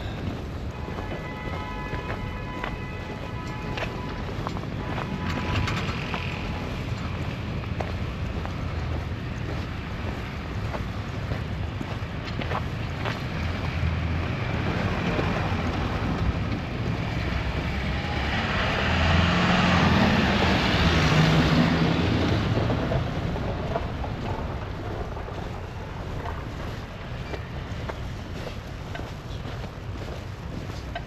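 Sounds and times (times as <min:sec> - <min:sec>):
street traffic noise: 0:00.0 - 0:31.0
vehicle passing: 0:13.0 - 0:31.0
storm wind on microphone: 0:19.8 - 0:30.6.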